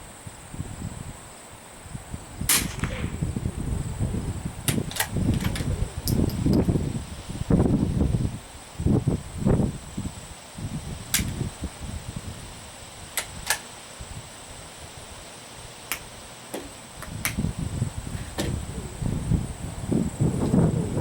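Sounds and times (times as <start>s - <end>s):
wind on microphone: 0.0s - 15.2s, 15.9s - 21.0s
sharp clicks: 2.5s - 3.1s, 4.7s - 6.7s, 11.1s - 11.4s, 13.2s - 13.7s, 15.9s - 17.5s.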